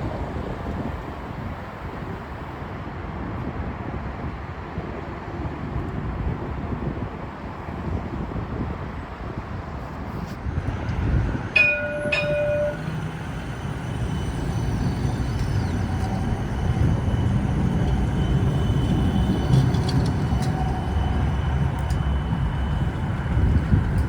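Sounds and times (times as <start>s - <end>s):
streetcar rumbling: 0.0s - 24.0s
thin steady whine: 10.2s - 24.0s.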